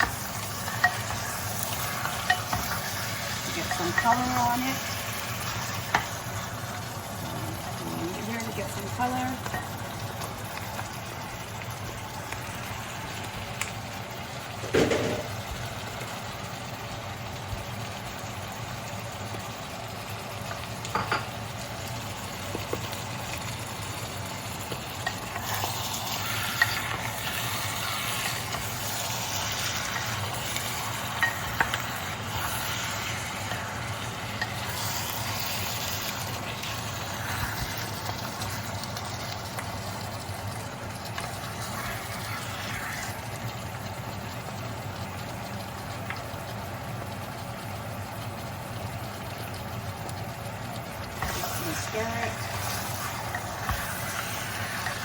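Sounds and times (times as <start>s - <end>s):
meat sizzling in hot oil: 0.0s - 55.0s.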